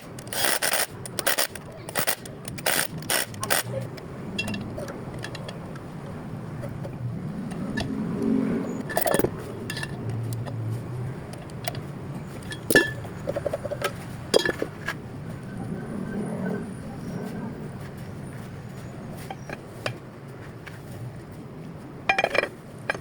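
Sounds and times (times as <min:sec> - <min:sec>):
metal parts and tools clinking: 0:00.0 - 0:03.8, 0:08.8 - 0:10.6, 0:11.4 - 0:14.7, 0:22.1 - 0:23.0.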